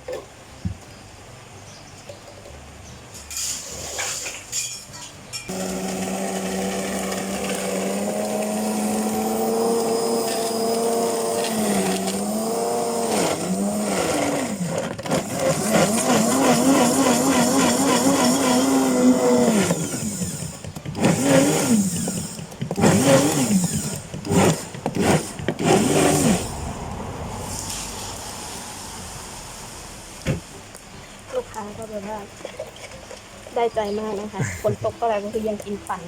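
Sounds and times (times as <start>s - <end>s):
blender crushing ice: 5.5s - 26.6s.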